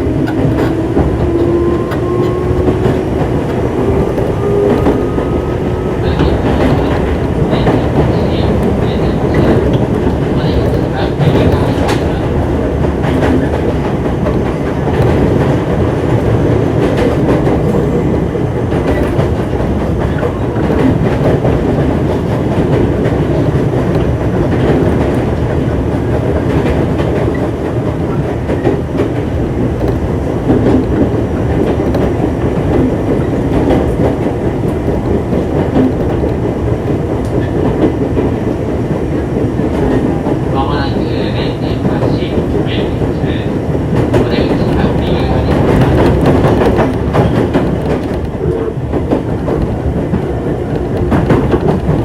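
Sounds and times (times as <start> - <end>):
train wheels rolling on rail: 0.0 - 52.0
wheels clicking over rail joints: 0.0 - 52.0.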